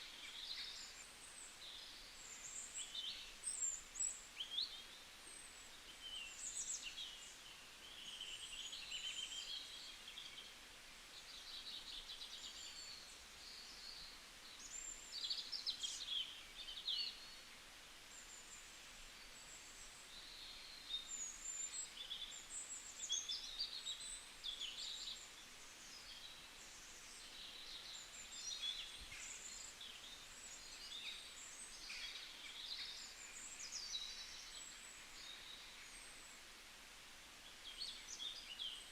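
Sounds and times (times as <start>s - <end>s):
faint hiss: 0.0s - 38.9s
songbirds singing and chirping: 0.0s - 38.9s.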